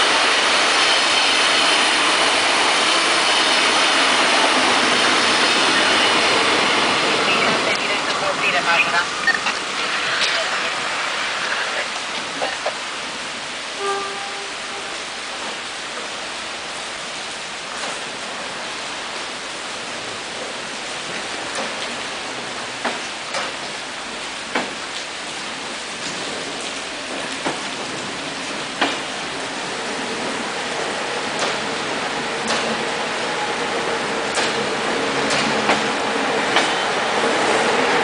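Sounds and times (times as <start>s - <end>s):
steady rain falling: 0.0s - 38.0s
raindrops tapping nearby: 20.5s - 31.7s.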